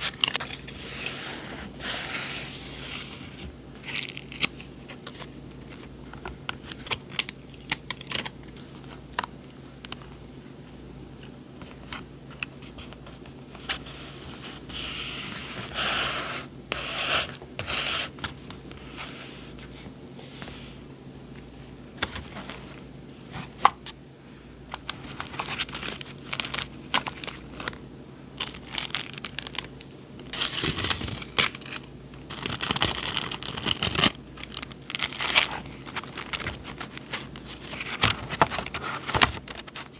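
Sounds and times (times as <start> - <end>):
paper rustling: 24.7 - 27.8, 28.4 - 39.9
paper crinkling and tearing: 28.4 - 39.9.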